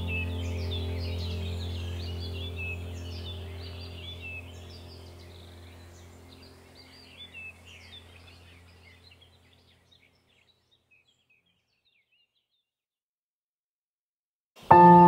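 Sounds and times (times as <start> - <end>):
steady low hum: 0.0 - 9.9
small birds chirping: 0.0 - 12.8.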